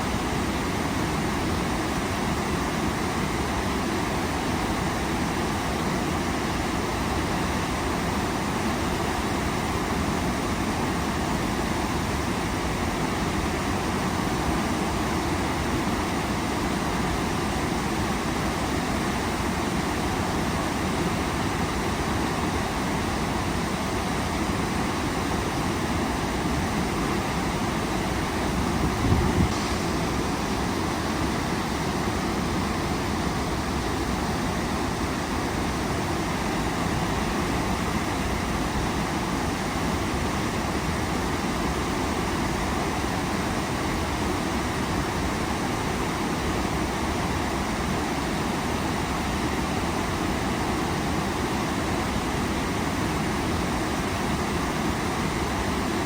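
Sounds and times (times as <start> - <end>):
waterfall rushing: 26.9 - 39.7.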